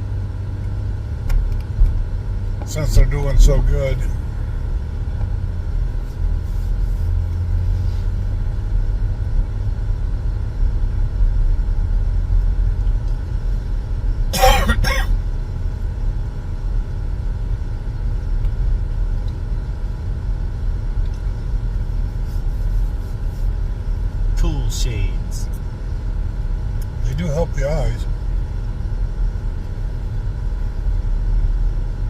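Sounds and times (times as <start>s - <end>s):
car road and engine rumble: 0.0s - 32.0s
person coughing: 14.3s - 15.2s.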